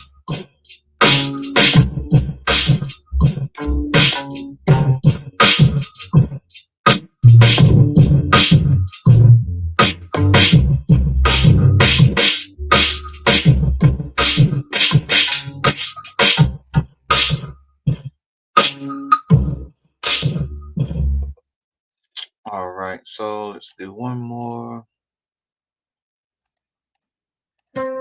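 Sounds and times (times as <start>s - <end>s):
hip-hop beat: 0.0s - 21.3s, 27.8s - 28.0s
chopped sample notes: 1.0s - 6.0s.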